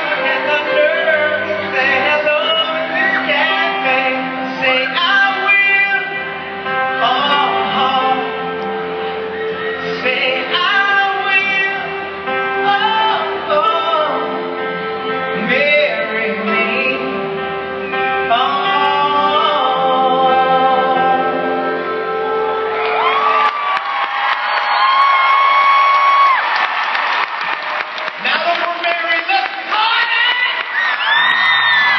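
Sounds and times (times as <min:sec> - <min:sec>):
voices singing along: 0:00.0 - 0:14.5
person singing: 0:00.0 - 0:22.6
guitar accompaniment: 0:00.0 - 0:31.9.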